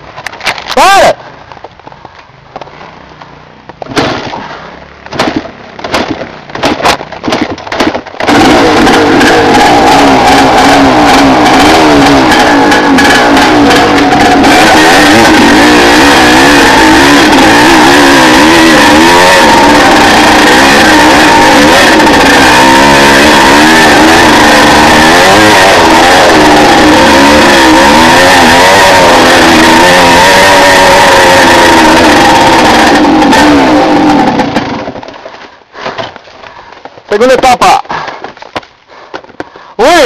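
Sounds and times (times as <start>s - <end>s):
motorcycle engine revving: 2.3s - 36.2s
knocks and rattles: 5.1s - 9.5s.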